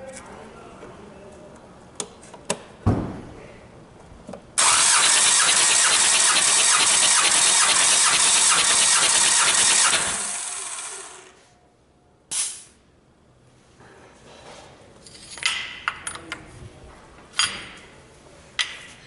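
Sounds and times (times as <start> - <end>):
thump: 2.8 - 3.3
starter motor cranking diesel engine: 4.6 - 11.4.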